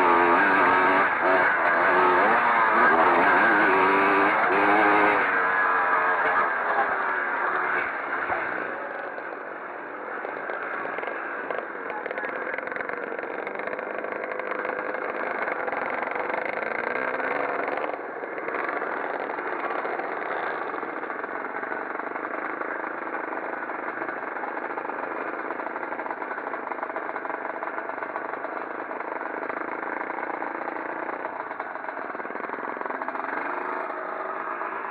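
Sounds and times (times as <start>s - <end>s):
motocross motorcycles racing: 0.0s - 34.9s.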